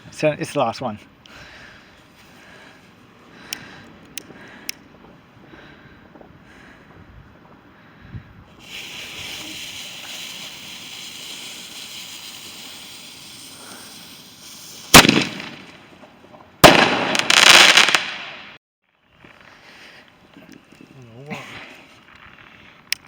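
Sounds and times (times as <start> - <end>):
firework fuse hissing: 8.5 - 16.0, 16.8 - 18.0
firework bangs: 8.5 - 18.6
firework crackling: 8.5 - 18.6.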